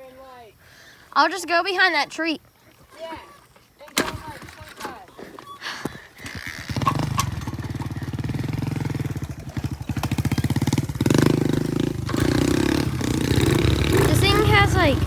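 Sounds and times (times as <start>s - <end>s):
small motorcycle engine idling and revving: 4.0s - 15.0s.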